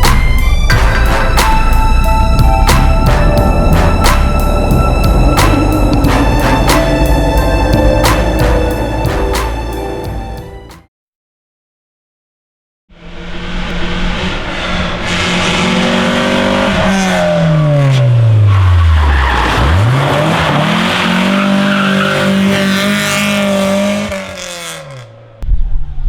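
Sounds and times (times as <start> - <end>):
rally car engine revving: 0.0 - 10.0, 13.0 - 25.4
tyres squealing: 18.5 - 24.6.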